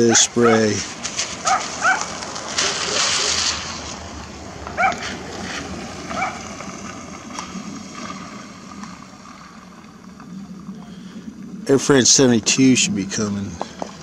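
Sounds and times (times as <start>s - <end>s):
dog barking: 0.0s - 0.7s, 1.4s - 2.1s, 4.8s - 5.0s, 6.1s - 6.4s
steady background hiss: 0.0s - 14.0s.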